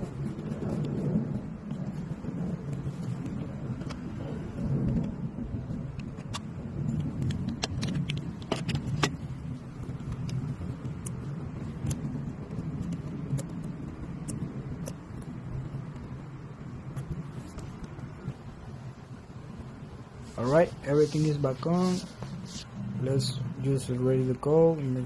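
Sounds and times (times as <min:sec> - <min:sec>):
low steady rumble: 0:00.0 - 0:25.0.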